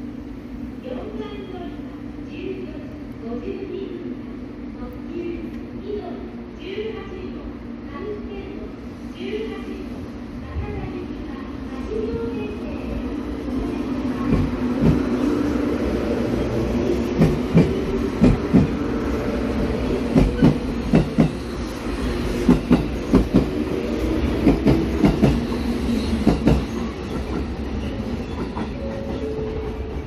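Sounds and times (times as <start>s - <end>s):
steady train hum: 0.0s - 30.0s
train wheels clicking on rail joints: 14.2s - 15.2s, 16.4s - 18.9s, 20.1s - 21.5s, 22.3s - 23.6s, 24.3s - 30.0s.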